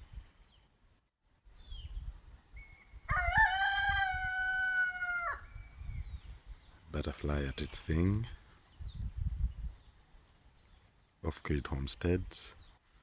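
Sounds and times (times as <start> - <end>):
rooster crowing: 3.1 - 5.5.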